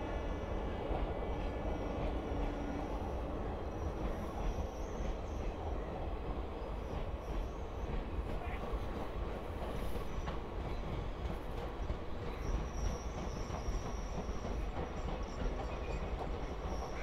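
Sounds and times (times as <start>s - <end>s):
train rolling on rails: 0.0s - 17.0s.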